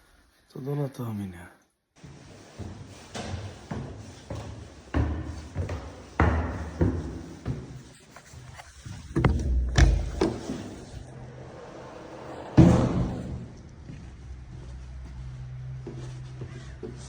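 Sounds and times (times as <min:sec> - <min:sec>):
knocks and thumps: 0:08.8 - 0:13.6
heavy thud: 0:08.9 - 0:14.0.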